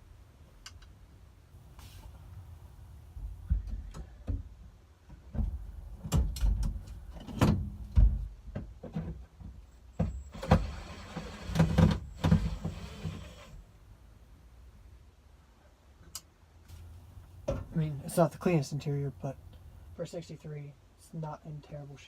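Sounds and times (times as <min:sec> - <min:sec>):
knocks and clunks of tools: 0:03.5 - 0:10.7.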